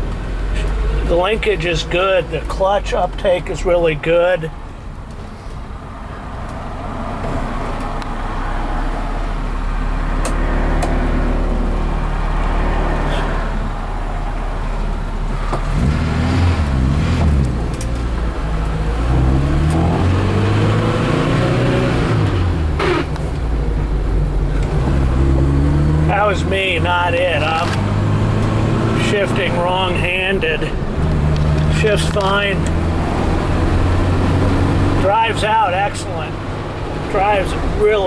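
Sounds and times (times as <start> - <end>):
car engine revving through gears: 5.1 - 38.0
gear shift clunk: 14.7 - 18.9, 22.2 - 25.2, 27.2 - 29.2, 30.8 - 35.1.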